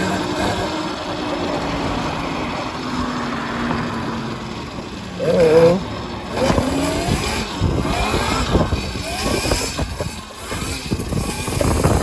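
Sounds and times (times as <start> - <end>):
electric motor whining: 0.0 - 12.0
wind rumbling on microphone: 6.3 - 12.0.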